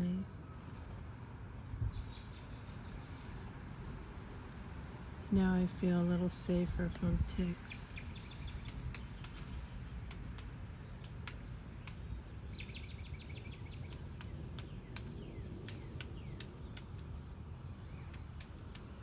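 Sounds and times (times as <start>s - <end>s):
low background rumble: 0.0s - 19.0s
sharp clicks: 8.6s - 12.1s, 13.9s - 19.0s.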